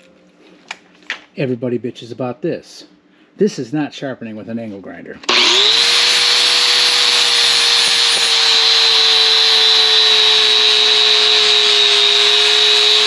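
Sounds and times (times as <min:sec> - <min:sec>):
angle grinder whining: 0:05.3 - 0:13.0.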